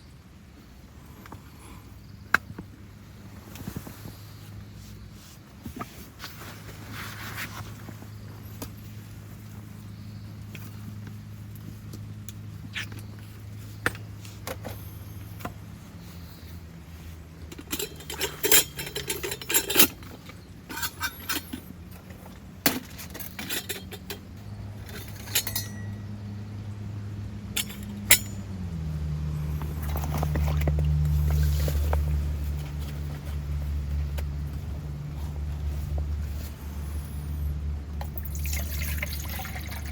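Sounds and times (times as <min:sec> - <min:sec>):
low engine hum: 0:00.1 - 0:39.9
metal and glass objects clinking: 0:17.5 - 0:21.8, 0:22.8 - 0:26.2, 0:27.6 - 0:28.5.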